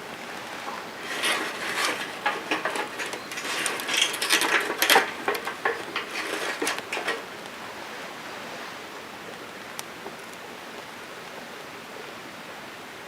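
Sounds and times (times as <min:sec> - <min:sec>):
clicks taps and rustles: 0:00.1 - 0:07.6.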